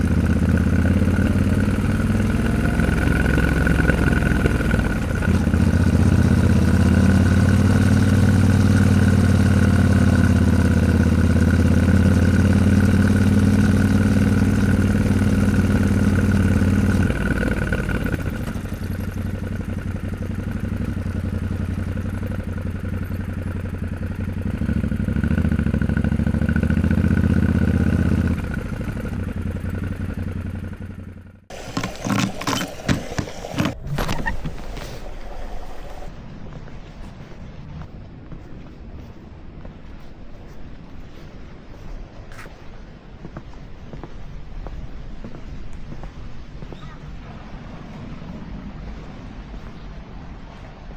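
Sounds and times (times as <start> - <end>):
motorcycle engine running: 0.0 - 36.1
irregular thumps: 31.5 - 36.1.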